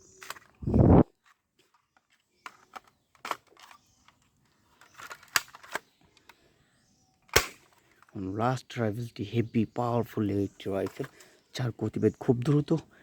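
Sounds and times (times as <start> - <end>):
plastic toy rifle clicks: 1.7 - 6.4, 7.2 - 8.1.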